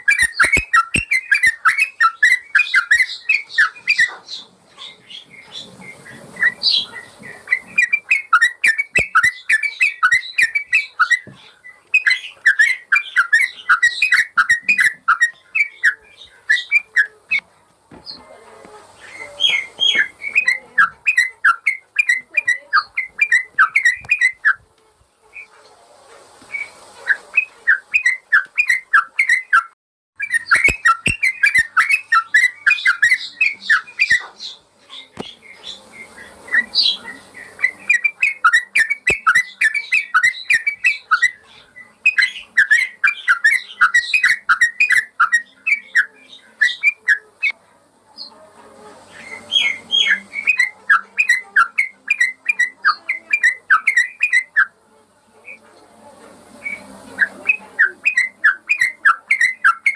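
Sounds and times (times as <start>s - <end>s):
bird singing chirping whistles: 0.0s - 4.1s, 6.4s - 11.2s, 11.9s - 17.1s, 19.1s - 24.6s, 26.5s - 34.6s, 56.6s - 59.9s.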